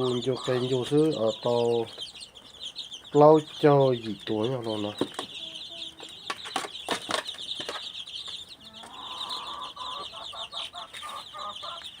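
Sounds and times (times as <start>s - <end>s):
chickens clucking: 0.0s - 12.0s
high chirping: 0.0s - 12.0s.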